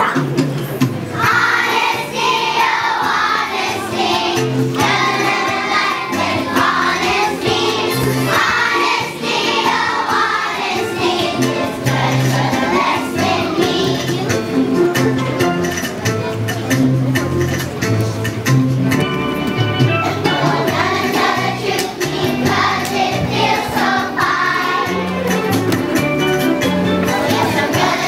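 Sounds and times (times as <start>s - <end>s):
musical accompaniment with bass: 0.0s - 28.0s
children's choir singing: 1.1s - 14.9s, 20.2s - 25.3s, 27.0s - 28.0s.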